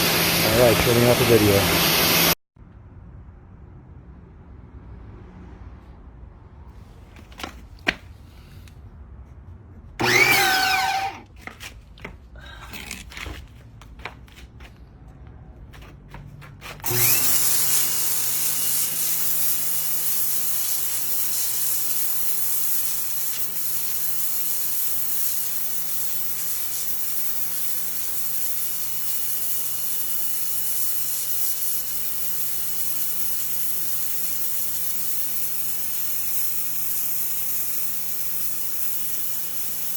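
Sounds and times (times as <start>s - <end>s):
pressure washer motor: 0.0s - 2.4s, 10.0s - 11.2s, 16.8s - 39.9s
water spray hissing: 16.9s - 39.9s.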